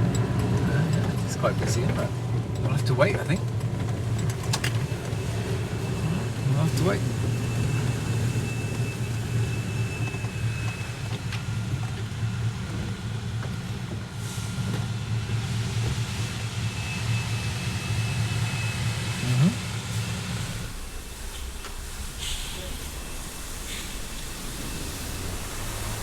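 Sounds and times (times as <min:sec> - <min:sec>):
car engine idling: 0:19.0 - 0:26.0.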